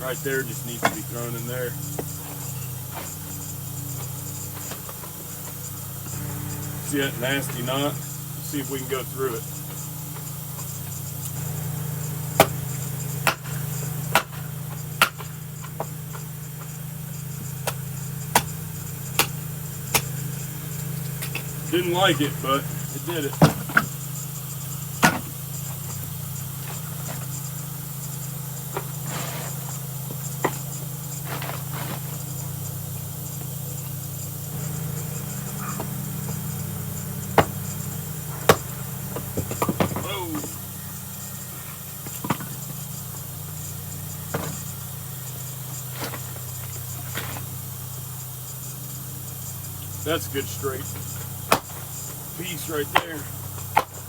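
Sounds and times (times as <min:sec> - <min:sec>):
wood splitting: 0:00.0 - 0:47.7, 0:50.0 - 0:54.0
steady low hum: 0:00.0 - 0:54.0
axe chopping wood: 0:12.4 - 0:16.2, 0:17.6 - 0:20.2, 0:25.0 - 0:25.3, 0:37.4 - 0:37.6, 0:38.4 - 0:40.4, 0:51.5 - 0:51.9.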